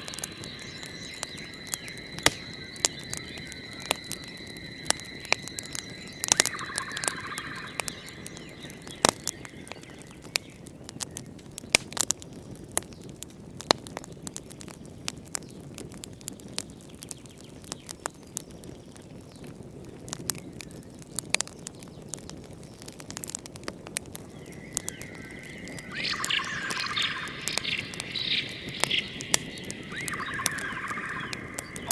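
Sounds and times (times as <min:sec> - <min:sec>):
steady high tone: 0:00.0 - 0:10.3, 0:24.7 - 0:31.9
fireplace crackling and popping: 0:00.0 - 0:31.9.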